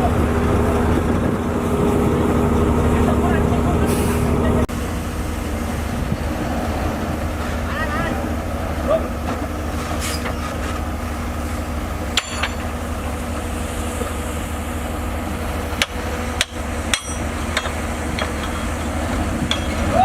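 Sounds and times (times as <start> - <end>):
bulldozer diesel engine running: 0.0 - 20.0
sharp metallic clanks: 12.1 - 12.8, 15.8 - 20.0.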